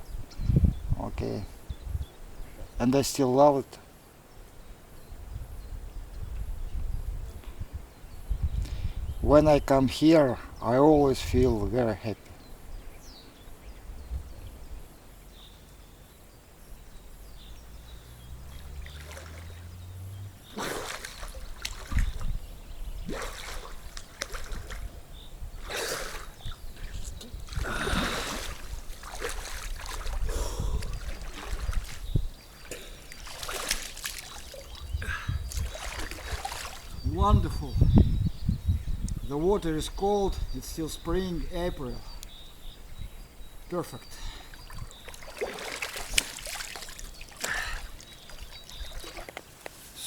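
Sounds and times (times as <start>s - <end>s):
river water splashing: 17.5s - 37.0s, 44.4s - 49.8s.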